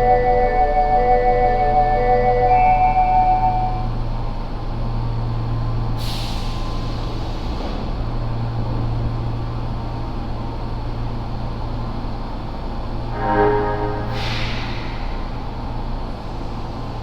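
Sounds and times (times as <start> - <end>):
subway train humming: 0.0 - 17.0
compressed air hiss: 14.1 - 15.5.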